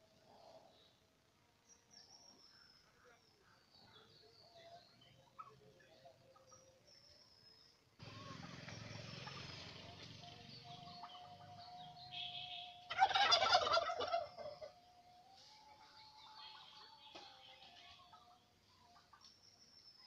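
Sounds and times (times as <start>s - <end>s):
turkey gobbling: 5.2s - 5.8s, 9.1s - 9.8s, 10.7s - 14.9s.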